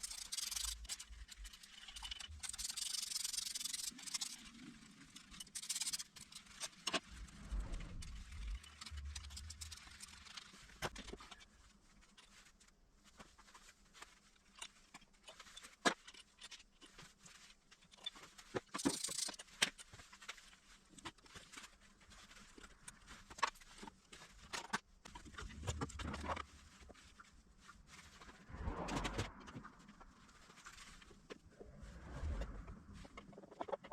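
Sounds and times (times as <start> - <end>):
hand tools and metal parts clicking: 0.0 - 7.1, 17.9 - 19.9
metal scraping: 5.1 - 11.4.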